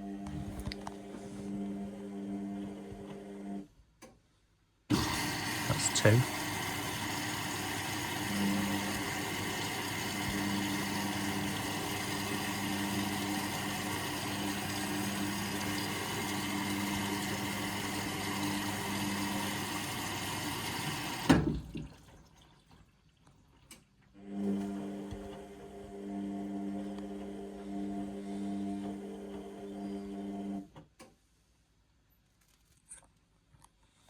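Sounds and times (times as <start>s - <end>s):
water hissing through inlet valve: 4.9s - 21.7s.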